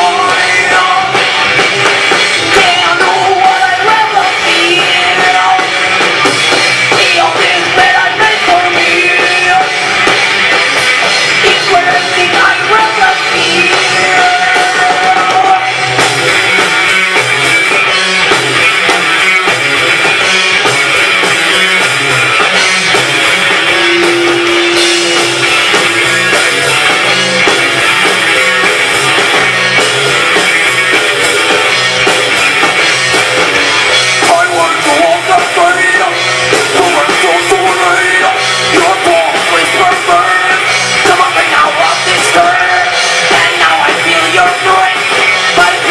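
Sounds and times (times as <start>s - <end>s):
person singing: 0.0s - 1.6s, 2.4s - 6.2s, 6.9s - 10.1s, 11.2s - 16.1s, 34.2s - 45.9s
live rock band playing: 0.0s - 45.9s.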